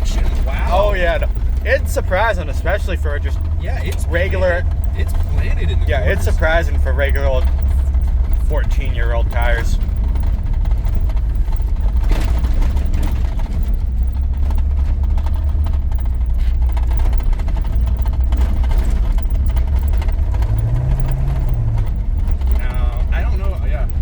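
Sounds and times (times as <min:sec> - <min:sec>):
pickup engine droning while driving: 0:00.0 - 0:24.0.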